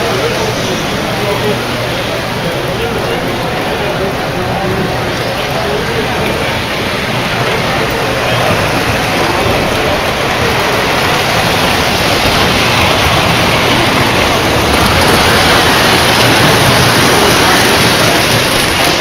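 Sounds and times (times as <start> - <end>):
model trains rumbling on track: 0.0 - 19.0.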